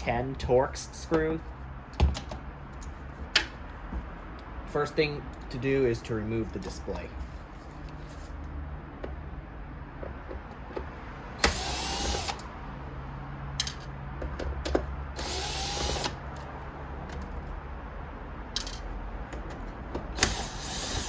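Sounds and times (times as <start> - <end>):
electric screwdriver running: 11.4 - 12.5, 15.2 - 16.2, 20.2 - 21.0.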